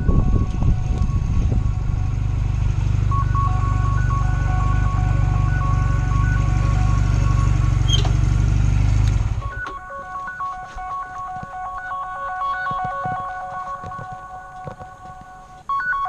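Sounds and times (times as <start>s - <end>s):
motorcycle engine running: 0.0s - 9.6s
electronic beeping melody: 0.0s - 16.0s.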